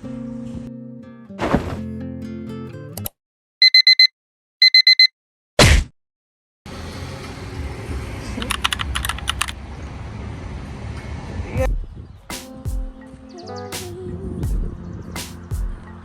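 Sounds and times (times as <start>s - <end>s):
short electronic beeps: 3.6s - 5.1s
sharp thump: 5.6s - 5.9s.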